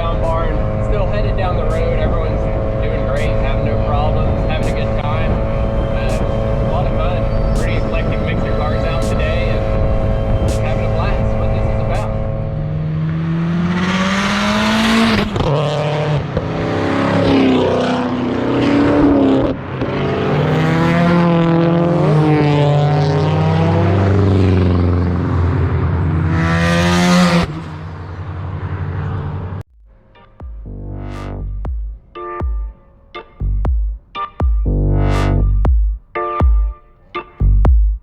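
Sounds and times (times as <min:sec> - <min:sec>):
car engines revving: 0:00.0 - 0:29.7
exhaust rushes: 0:00.0 - 0:30.1
electronic music with a beat: 0:01.6 - 0:12.2, 0:30.0 - 0:38.0.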